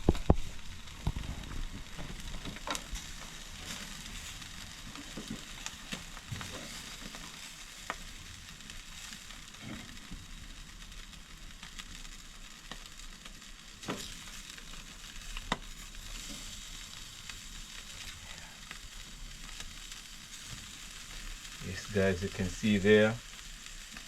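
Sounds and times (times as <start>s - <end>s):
fat popping: 0.0s - 3.1s
chicken sizzling on a grill: 0.0s - 24.0s.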